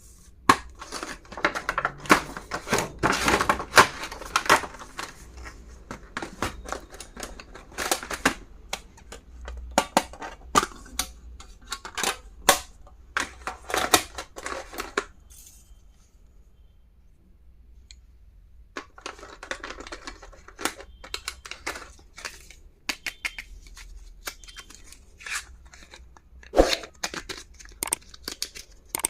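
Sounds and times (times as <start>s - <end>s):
plastic packaging crinkling: 0.5s - 8.7s, 19.0s - 29.0s.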